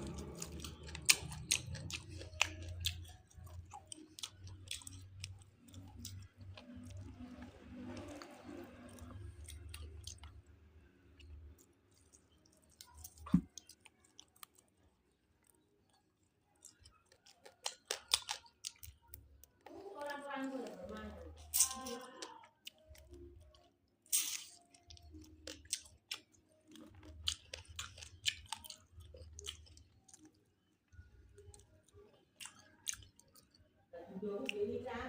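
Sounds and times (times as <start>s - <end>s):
person chewing with mouth clicks: 0.0s - 10.4s, 11.1s - 14.8s, 15.4s - 20.2s, 21.4s - 33.6s.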